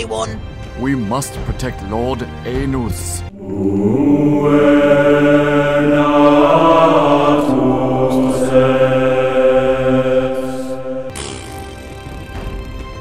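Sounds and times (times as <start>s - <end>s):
chanted vocal music: 2.5s - 11.2s.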